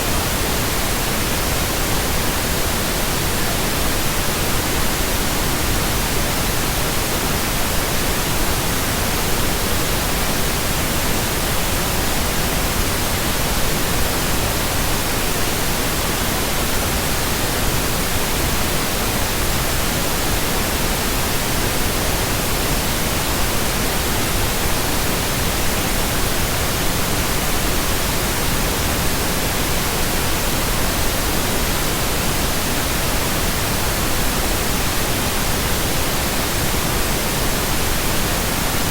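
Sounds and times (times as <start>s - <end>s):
pink noise hiss: 0.0s - 38.9s.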